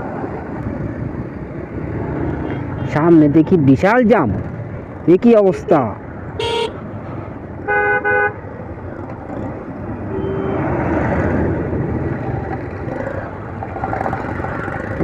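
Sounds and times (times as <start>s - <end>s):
road and traffic noise: 0.0s - 15.0s
vehicle horn toots: 6.4s - 6.8s, 7.6s - 8.4s, 10.1s - 10.7s.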